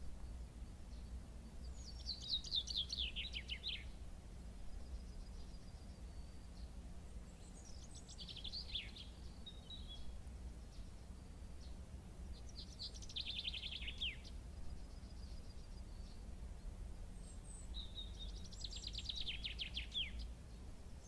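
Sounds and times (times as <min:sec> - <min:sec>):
low outdoor rumble: 0:00.0 - 0:21.0
songbird trilling: 0:00.9 - 0:04.0, 0:07.3 - 0:10.1, 0:12.4 - 0:16.2, 0:17.2 - 0:20.3.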